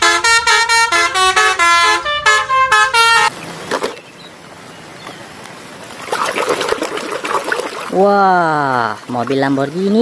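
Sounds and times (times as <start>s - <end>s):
water splashing and trickling: 3.3s - 10.0s.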